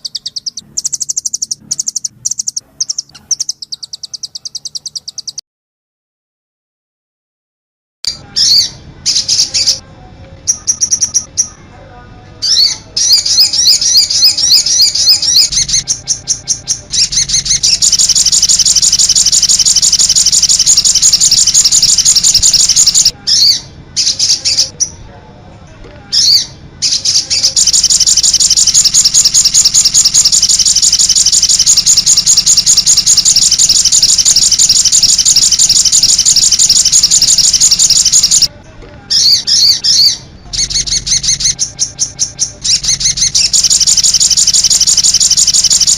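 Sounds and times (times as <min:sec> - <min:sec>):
songbird high-pitched trill: 0:00.0 - 0:05.4, 0:12.5 - 0:24.7, 0:26.9 - 0:38.5, 0:39.2 - 0:45.9.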